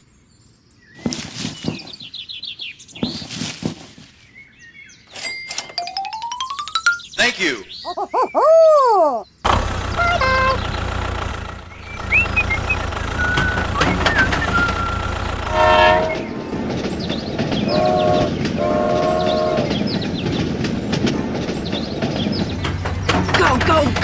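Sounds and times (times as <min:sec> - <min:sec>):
low vehicle rumble: 0:09.4 - 0:24.0
horn blasts: 0:09.6 - 0:10.8, 0:12.6 - 0:16.4, 0:17.6 - 0:19.8.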